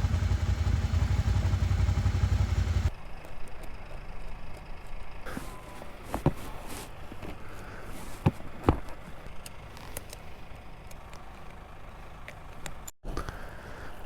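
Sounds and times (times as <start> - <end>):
motorcycle engine running: 0.0 - 2.9.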